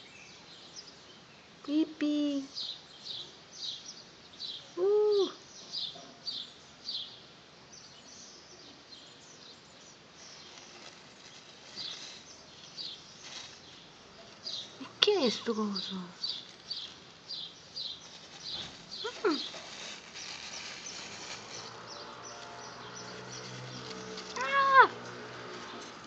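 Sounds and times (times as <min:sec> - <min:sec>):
bird chirping: 0:02.5 - 0:24.9.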